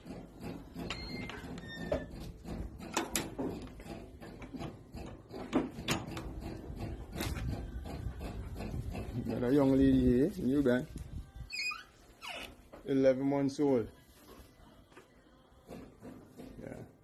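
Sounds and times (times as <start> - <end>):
irregular knocks and clatter: 0.0 - 9.5.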